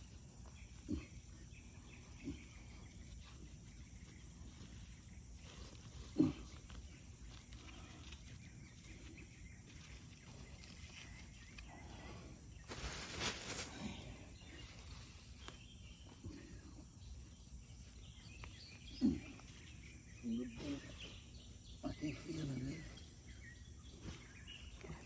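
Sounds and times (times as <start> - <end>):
hands rustling through soil: 1.6 - 16.6.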